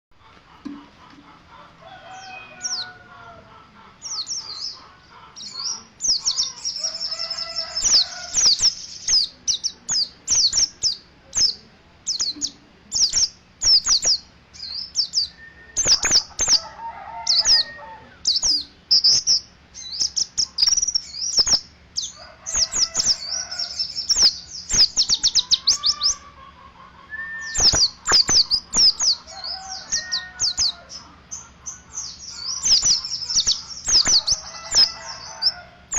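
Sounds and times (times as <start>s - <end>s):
faint lower bird calls: 0.2s - 35.9s
bird chattering twitter song: 2.2s - 35.9s.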